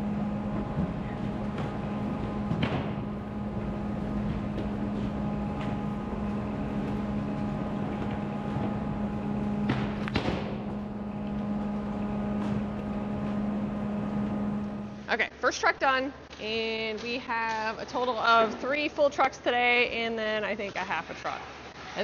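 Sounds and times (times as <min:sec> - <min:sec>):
engine running steadily: 0:00.0 - 0:15.1.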